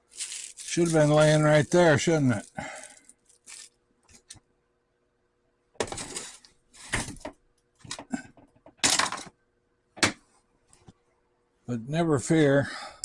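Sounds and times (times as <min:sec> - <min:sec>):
small metal parts clattering: 0:02.3 - 0:03.8, 0:08.8 - 0:09.3.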